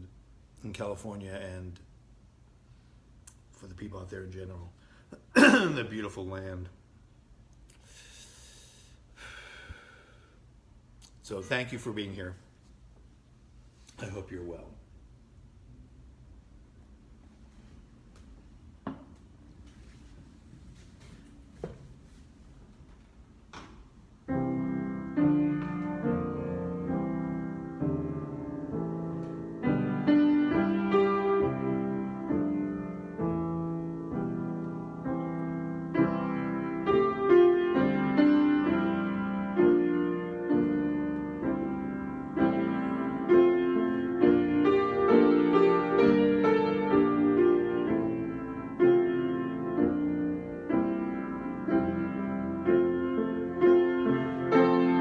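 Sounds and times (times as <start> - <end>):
gentle solo piano: 24.3 - 55.0.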